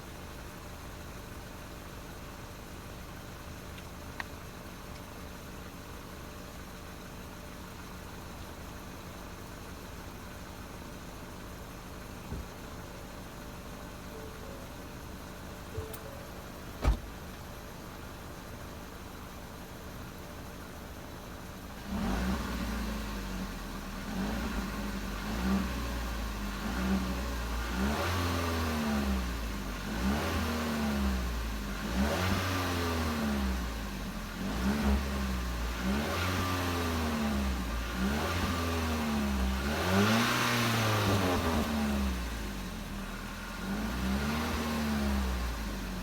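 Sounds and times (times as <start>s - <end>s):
car engine revving: 21.8s - 23.4s.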